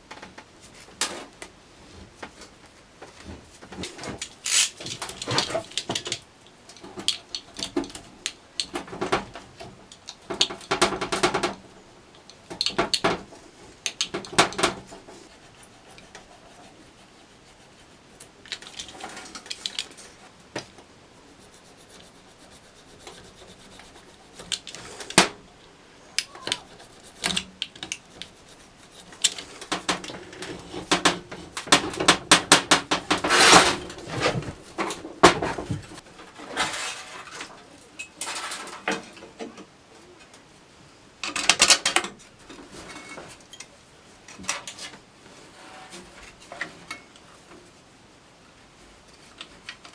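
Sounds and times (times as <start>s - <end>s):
metal and wooden parts clattering: 3.6s - 11.6s, 38.2s - 39.2s.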